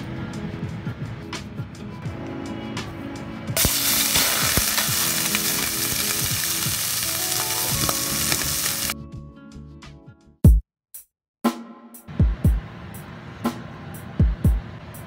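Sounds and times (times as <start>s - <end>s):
squid sizzling in hot oil: 3.6s - 9.0s.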